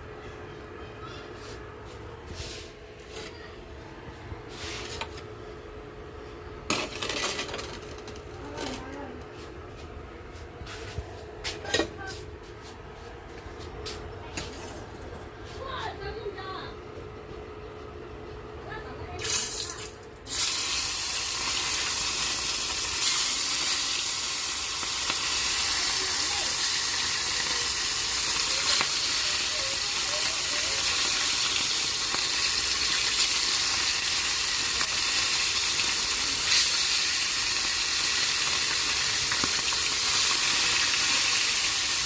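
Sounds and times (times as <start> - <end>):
food sizzling in a pan: 19.2 - 42.0.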